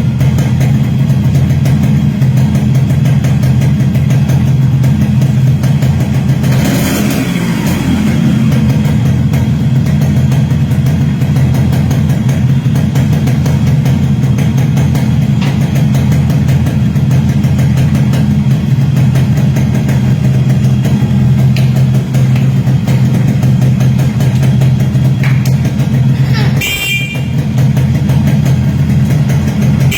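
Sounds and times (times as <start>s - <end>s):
two-stroke motorcycle engine idling: 0.0s - 29.9s.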